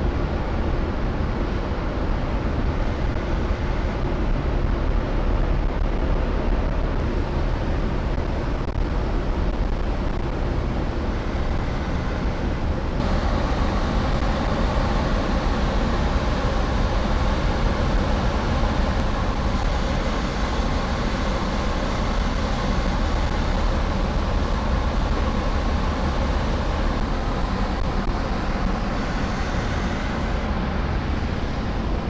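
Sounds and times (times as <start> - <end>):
ship engines rumbling: 11.0 - 32.0.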